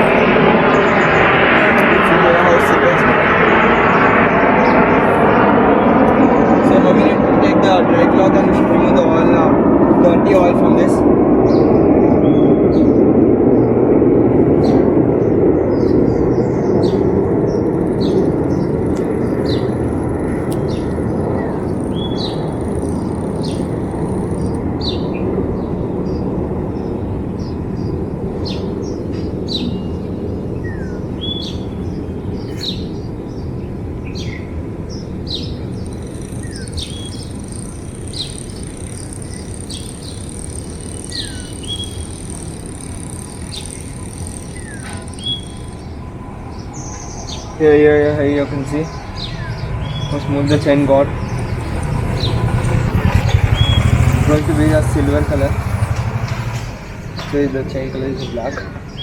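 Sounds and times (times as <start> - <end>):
small birds chirping: 0.0 - 59.0
steady rushing noise: 0.0 - 59.0
thin high whine: 14.5 - 25.5, 34.8 - 58.5.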